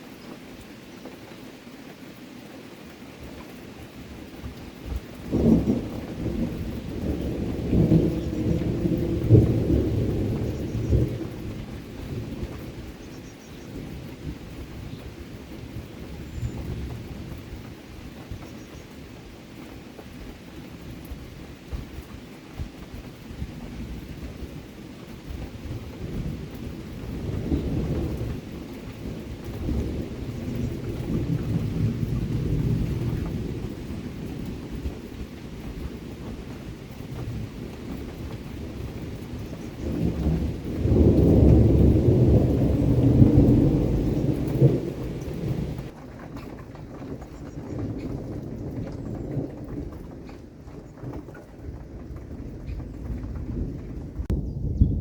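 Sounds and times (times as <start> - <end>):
steady rain: 0.0 - 55.0
rolling thunder: 4.4 - 18.8, 22.6 - 55.0.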